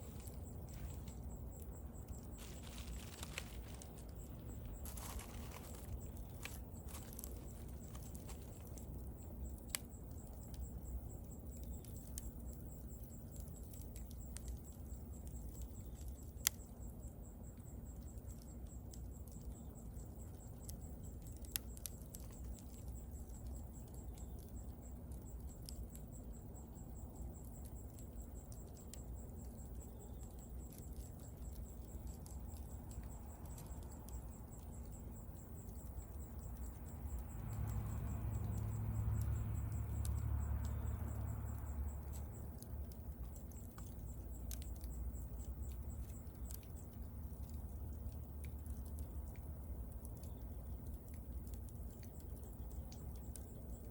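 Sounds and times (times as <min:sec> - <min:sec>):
fire pops: 0:00.0 - 0:10.8
wood fire crackling: 0:00.0 - 0:53.9.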